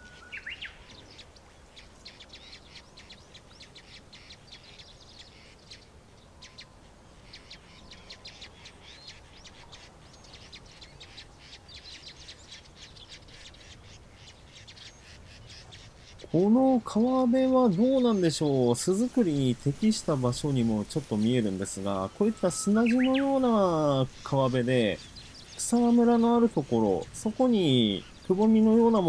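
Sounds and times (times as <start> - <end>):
faint bird chirping: 0.0 - 29.0.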